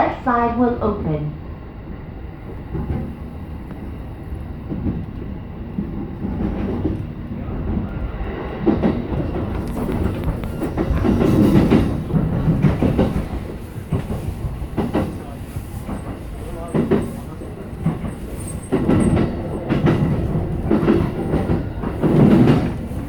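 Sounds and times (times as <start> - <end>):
train wheels rumbling on rail: 0.0 - 23.0
clacks over rail joints: 4.7 - 23.0.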